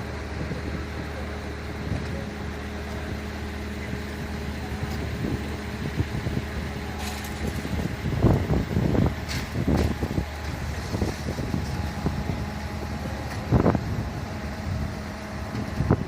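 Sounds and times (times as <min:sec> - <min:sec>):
fire truck engine idling: 0:00.0 - 0:16.0.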